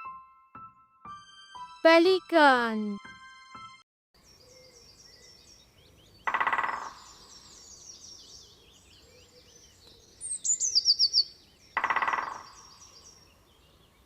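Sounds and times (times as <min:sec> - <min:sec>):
small birds chirping: 0:06.9 - 0:11.8.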